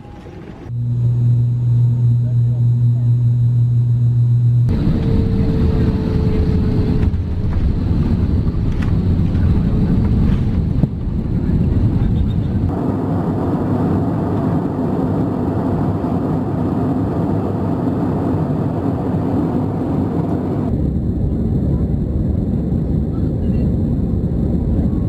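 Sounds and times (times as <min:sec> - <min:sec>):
jet engines and airflow: 0:00.0 - 0:25.0.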